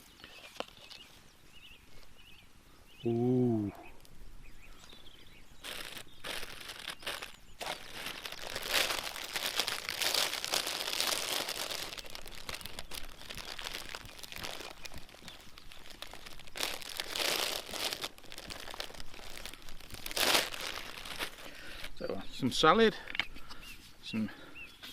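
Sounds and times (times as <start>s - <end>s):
food packaging crinkling: 5.6s - 22.0s.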